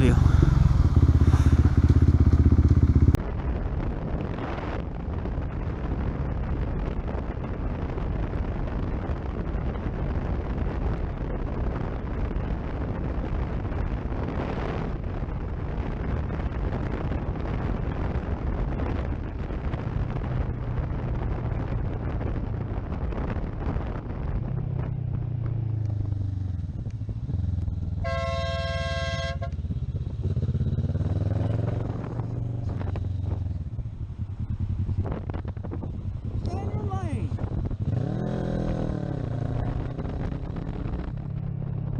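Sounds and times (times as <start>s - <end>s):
motorcycle engine running: 0.0s - 3.9s, 15.0s - 41.9s
heavy wind noise: 0.0s - 41.9s
vehicle horn: 28.0s - 29.6s.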